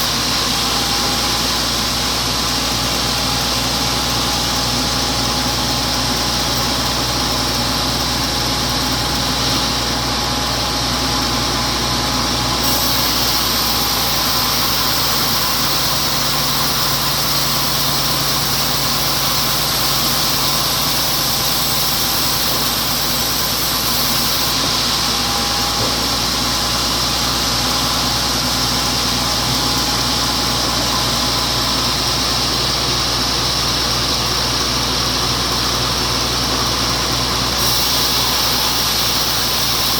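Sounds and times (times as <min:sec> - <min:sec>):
sawmill sawing log: 0:00.0 - 0:39.9
bright hiss: 0:12.5 - 0:32.8, 0:37.6 - 0:39.9.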